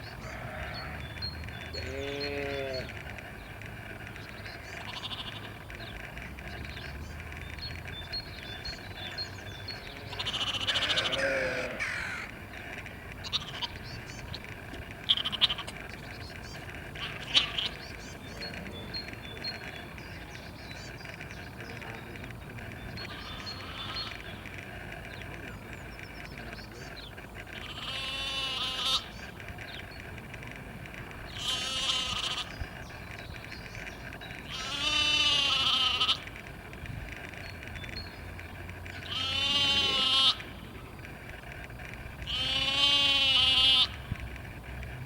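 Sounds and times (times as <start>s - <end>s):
livestock bleating: 0.2s - 1.0s, 1.7s - 2.9s, 4.8s - 5.6s, 9.9s - 12.3s, 13.2s - 13.8s, 15.0s - 15.8s, 17.0s - 17.8s, 23.1s - 24.2s, 27.6s - 29.1s, 31.3s - 32.5s, 34.5s - 36.3s, 39.0s - 40.5s, 42.2s - 44.0s.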